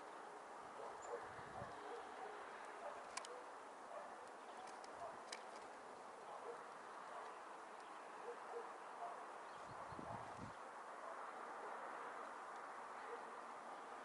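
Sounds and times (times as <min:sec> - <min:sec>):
bird chirp: 0:00.8 - 0:10.6.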